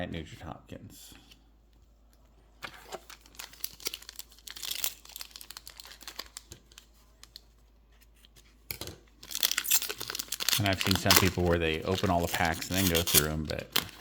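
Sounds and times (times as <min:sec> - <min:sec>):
wrapper crinkling and tearing: 0:02.6 - 0:07.5, 0:09.2 - 0:14.0.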